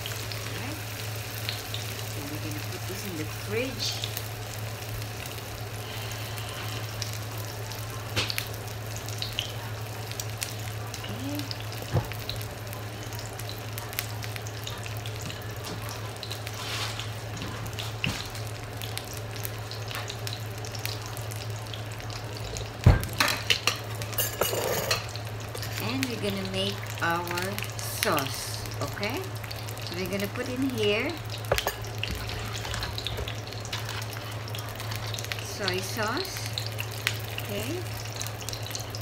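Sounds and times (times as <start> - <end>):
frying sizzle and crackles: 0.0 - 39.0.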